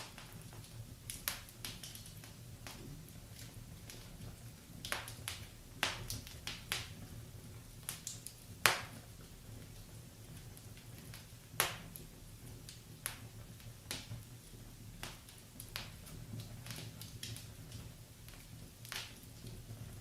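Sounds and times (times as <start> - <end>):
burning logs popping and snapping: 0.0 - 20.0.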